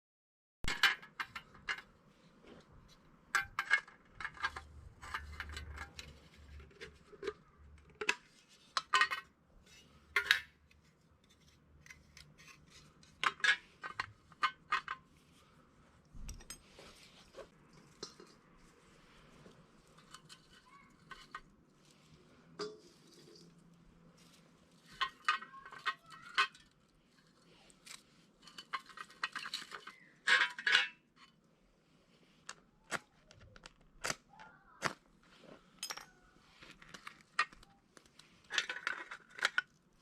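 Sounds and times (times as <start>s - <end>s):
scraping and handling noise: 0.6s - 40.0s
metal can clinking: 22.6s - 23.4s.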